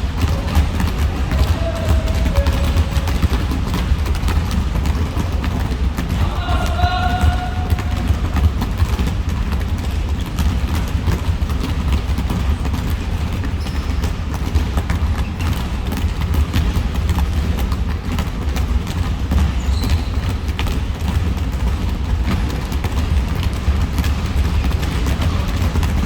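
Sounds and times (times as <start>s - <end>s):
sneaker squeaks: 0.0s - 5.0s, 13.4s - 16.2s, 19.4s - 20.7s
footfalls: 0.0s - 10.0s
basketballs bouncing on floor: 0.0s - 26.0s.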